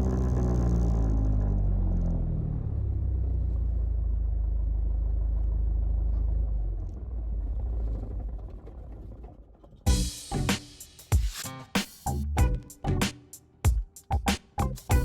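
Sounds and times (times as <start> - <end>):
aircraft engine winding down: 0.0 - 8.8.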